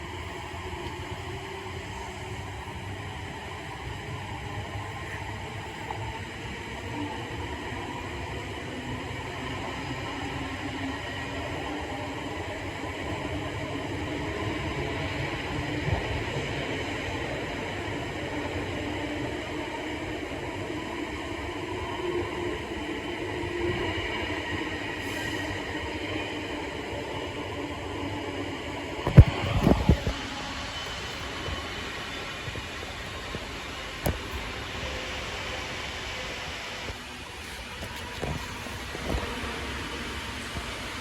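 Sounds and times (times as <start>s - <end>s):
train wheels rumbling on rail: 0.0s - 41.0s
high whine: 22.2s - 40.6s.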